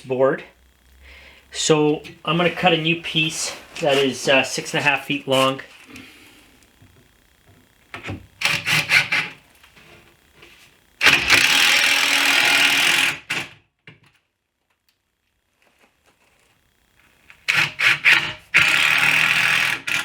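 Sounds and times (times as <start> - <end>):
power saw cutting wood: 1.2 - 6.2, 8.0 - 9.4, 11.0 - 13.3, 17.4 - 20.0.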